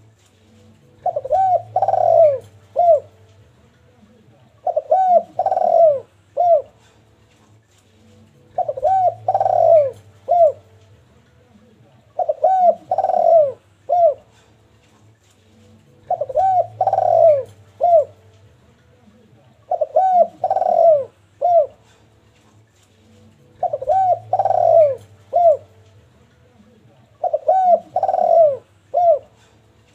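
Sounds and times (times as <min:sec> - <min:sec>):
dove cooing: 0:00.9 - 0:03.3, 0:04.5 - 0:07.0, 0:08.4 - 0:10.8, 0:12.0 - 0:14.5, 0:15.9 - 0:18.3, 0:19.6 - 0:22.0, 0:23.4 - 0:25.8, 0:27.1 - 0:29.9.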